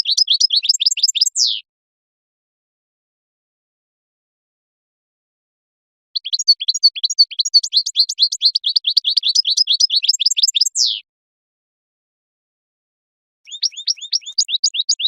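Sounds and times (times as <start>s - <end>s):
goldfinch singing: 0.0s - 1.6s, 6.2s - 11.0s, 13.5s - 15.0s.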